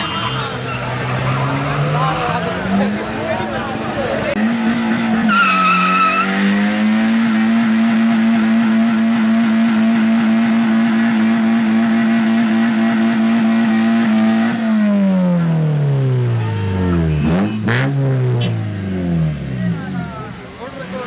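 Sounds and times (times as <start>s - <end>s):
car engine at high revs: 4.2s - 21.0s.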